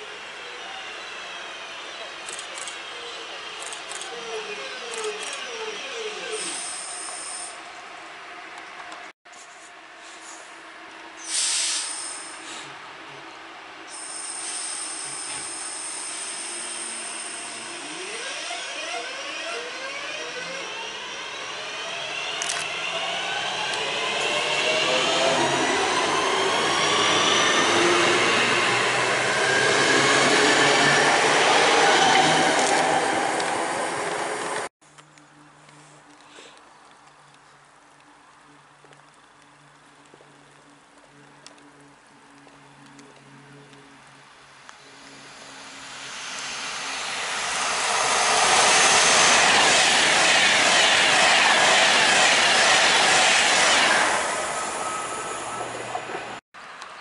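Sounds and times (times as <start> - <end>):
electric train whining: 13.9 - 34.7, 43.4 - 56.4
wheels rumbling on track: 38.6 - 57.0.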